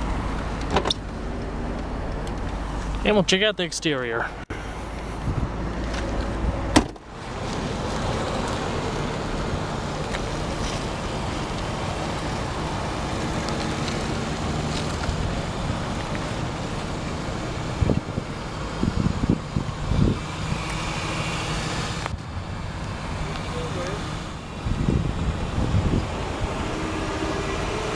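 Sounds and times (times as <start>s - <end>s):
car engine idling: 0.0s - 27.9s
wind noise on microphone: 4.8s - 6.8s, 17.6s - 23.5s, 24.2s - 27.9s
sharp thump: 6.7s - 7.0s.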